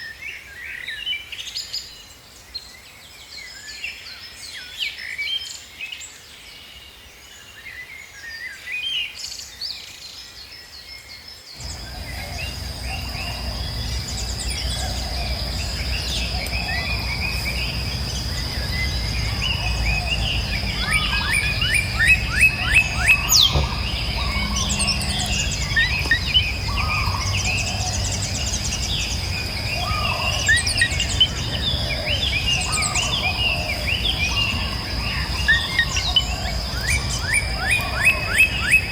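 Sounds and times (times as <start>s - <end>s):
low rumble: 11.6s - 35.4s
birds chirping and whistling: 11.6s - 38.9s
high-pitched insect drone: 11.6s - 38.9s.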